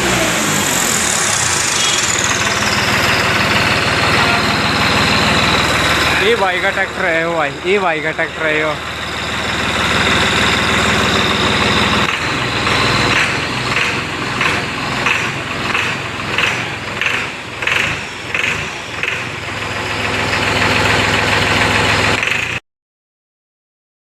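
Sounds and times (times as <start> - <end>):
tractor diesel engine running: 0.0 - 22.6.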